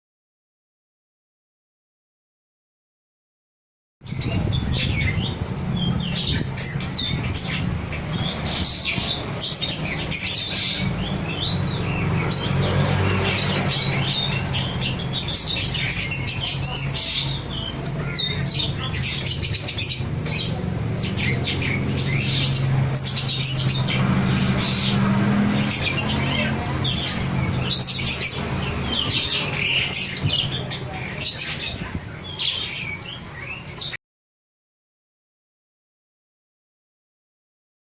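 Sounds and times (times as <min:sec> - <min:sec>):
myna chirping and squawking: 0:04.0 - 0:34.0.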